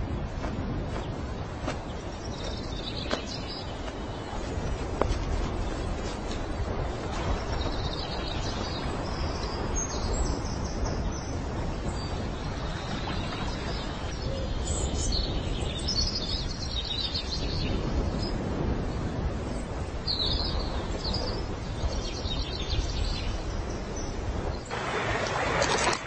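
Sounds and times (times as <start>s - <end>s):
birds chirping: 0.0s - 26.0s
steady rushing background noise: 0.0s - 26.0s.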